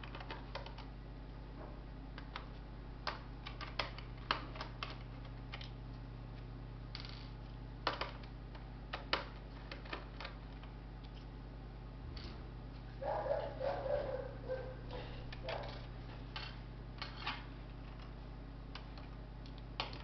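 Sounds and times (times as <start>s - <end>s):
steady low hum: 0.0s - 20.0s
clicks and taps of laptop parts: 7.8s - 10.7s.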